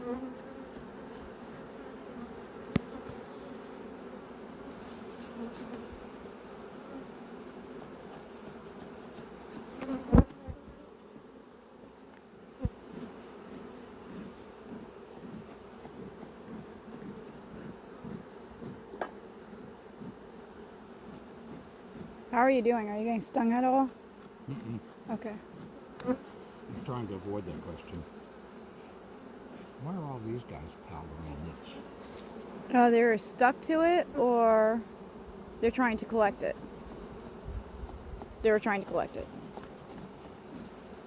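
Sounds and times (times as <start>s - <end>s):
bees buzzing: 0.0s - 41.0s.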